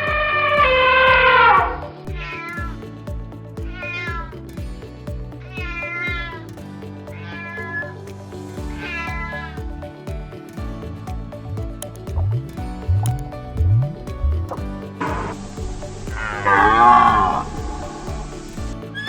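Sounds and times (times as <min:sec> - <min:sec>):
background music with steady beat: 0:00.0 - 0:19.0.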